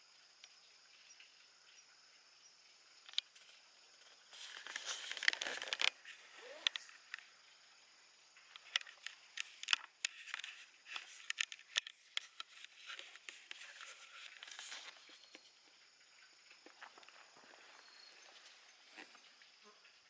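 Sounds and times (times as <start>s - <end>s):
soft rustles: 4.1s - 7.2s, 8.7s - 15.5s.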